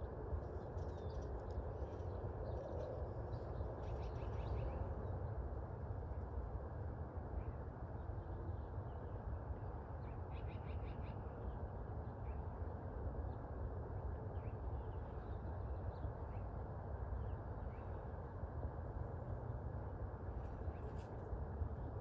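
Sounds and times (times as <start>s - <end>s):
low background rumble: 0.0s - 22.0s.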